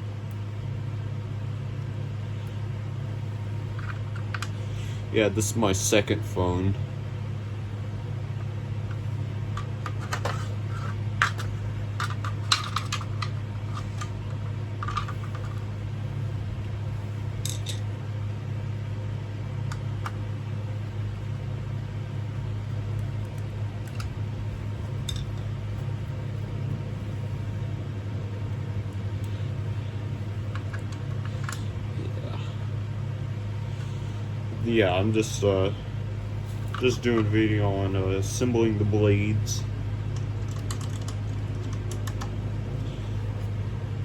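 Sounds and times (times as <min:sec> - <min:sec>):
steady low hum: 0:00.0 - 0:44.0
small metal parts clinking: 0:09.6 - 0:14.1, 0:17.4 - 0:17.9.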